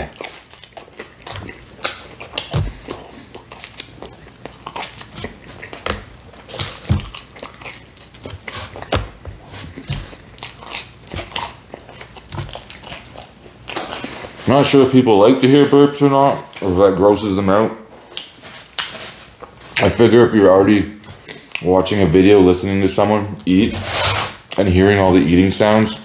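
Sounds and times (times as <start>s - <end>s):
man chewing crunchy crust: 0.0s - 14.8s, 21.0s - 21.7s.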